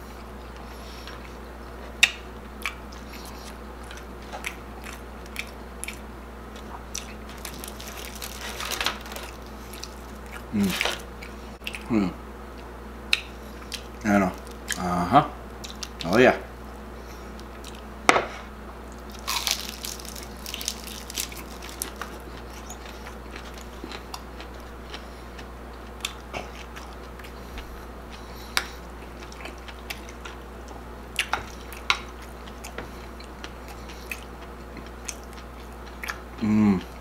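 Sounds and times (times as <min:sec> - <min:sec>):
quiet chewing: 0:00.1 - 0:14.8, 0:15.5 - 0:16.1, 0:16.9 - 0:17.9, 0:18.8 - 0:37.0
crisp crunching bites: 0:07.0 - 0:11.1, 0:19.1 - 0:24.0.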